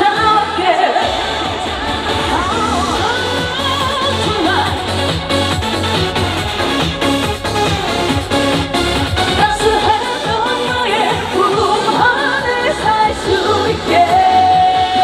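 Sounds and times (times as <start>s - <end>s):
woman singing: 0.0s - 5.4s, 9.4s - 15.0s
music with steady beat: 0.0s - 15.0s.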